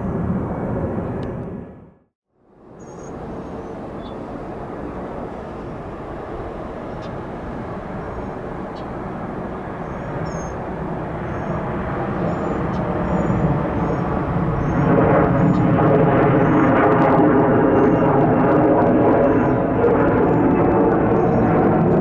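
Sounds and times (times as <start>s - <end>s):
jet engines roaring: 0.0s - 2.0s, 2.6s - 22.0s
steady engine tones: 2.7s - 19.0s.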